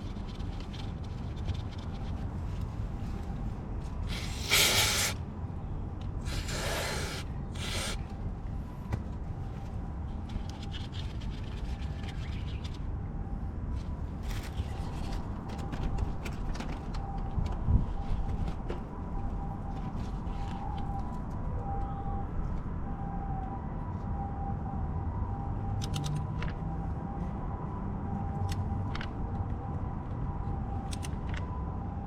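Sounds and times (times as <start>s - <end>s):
short rubbing sounds: 4.1s - 5.2s, 6.2s - 8.0s.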